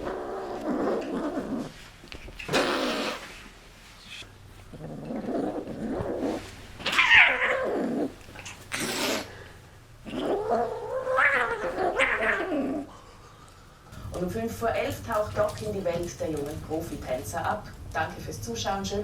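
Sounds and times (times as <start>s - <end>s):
cat crying: 6.8s - 9.3s, 10.1s - 12.9s.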